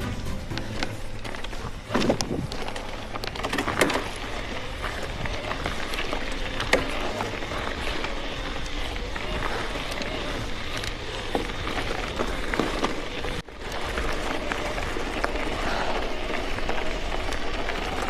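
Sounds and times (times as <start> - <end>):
bike tyres crunching on dirt: 0.0 - 18.0
wind noise: 0.0 - 18.0.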